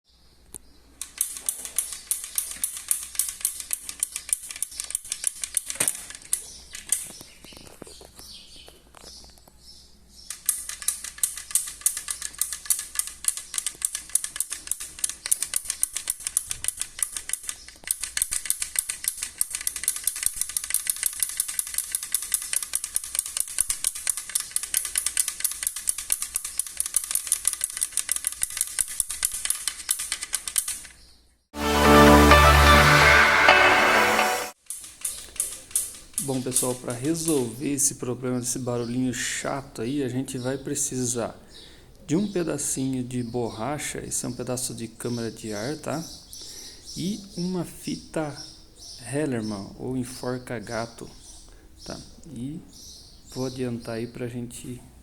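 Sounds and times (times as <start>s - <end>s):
bicycle clicking rattle: 1.0s - 7.1s, 10.3s - 31.0s.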